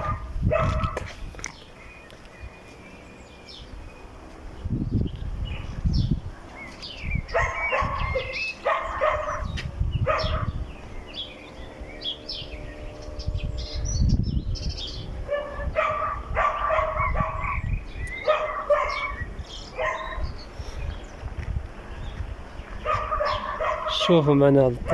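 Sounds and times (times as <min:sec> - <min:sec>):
dog barking: 0:00.0 - 0:01.1, 0:07.3 - 0:10.6, 0:15.3 - 0:20.2, 0:22.8 - 0:24.3
gusty low rumble: 0:00.0 - 0:01.4, 0:03.6 - 0:23.9, 0:24.6 - 0:24.9.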